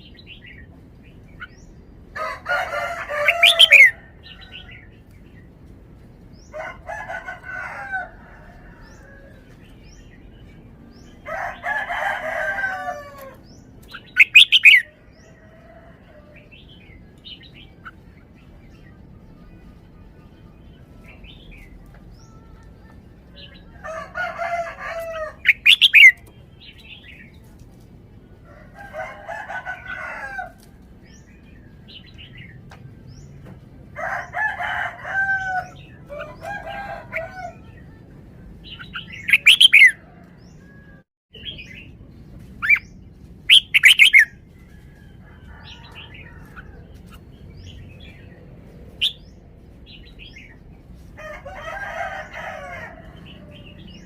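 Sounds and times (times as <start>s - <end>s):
bird singing warbling phrases: 3.0s - 4.9s, 13.2s - 15.0s, 25.3s - 27.5s, 38.6s - 40.0s, 42.6s - 44.3s.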